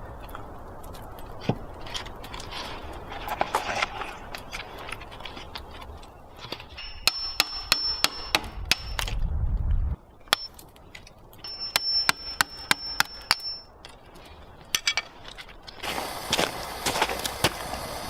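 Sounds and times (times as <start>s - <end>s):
high ringing tone: 11.4s - 13.7s.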